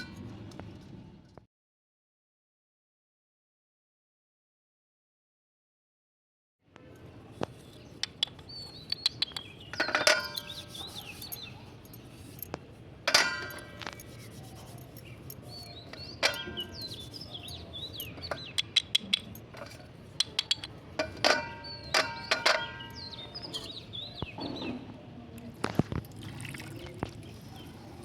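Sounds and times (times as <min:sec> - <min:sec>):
birds chirping: 0:07.6 - 0:24.9.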